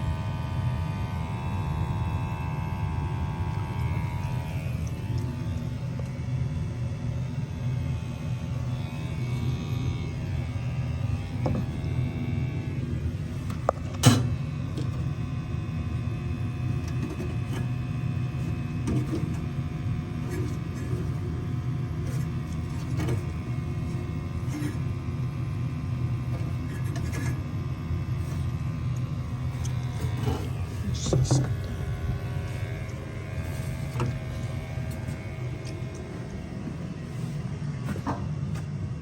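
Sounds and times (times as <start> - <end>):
gas furnace rumbling: 0.0 - 39.0.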